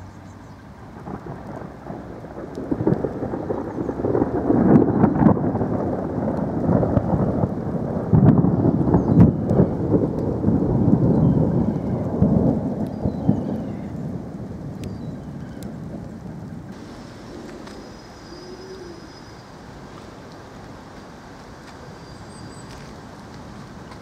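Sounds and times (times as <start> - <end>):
rain falling: 0.0 - 24.0
thunder rumbling: 0.0 - 24.0.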